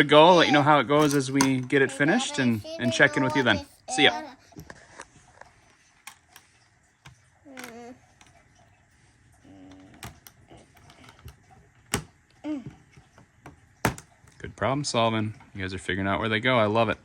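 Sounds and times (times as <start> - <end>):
children's vocal sounds: 0.0 - 1.0, 2.0 - 4.6.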